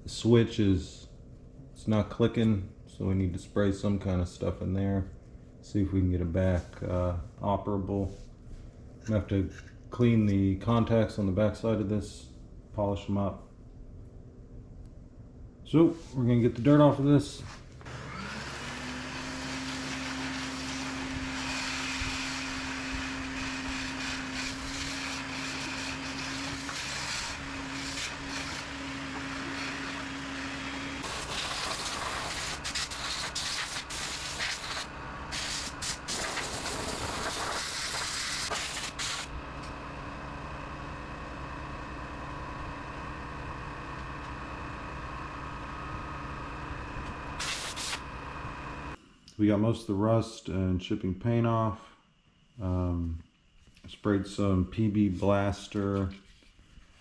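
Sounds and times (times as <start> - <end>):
power tools stripping metal: 17.9 - 39.3.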